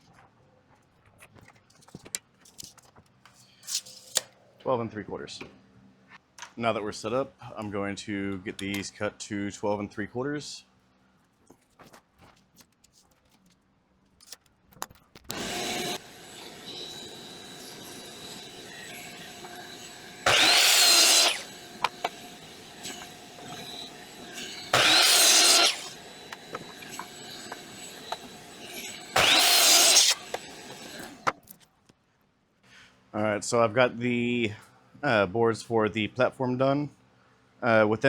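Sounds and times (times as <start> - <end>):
machine hum: 15.3 - 31.3
power saw cutting boards: 15.3 - 31.4.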